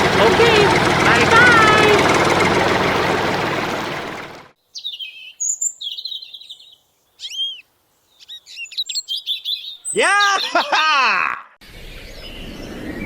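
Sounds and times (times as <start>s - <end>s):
loud machine noise: 0.0s - 4.5s
birds chirping and whistling: 4.7s - 10.6s.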